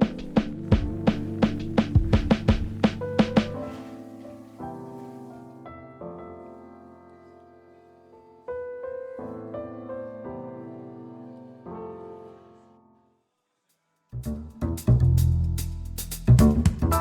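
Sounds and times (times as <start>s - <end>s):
slow piano chords: 0.0s - 13.1s.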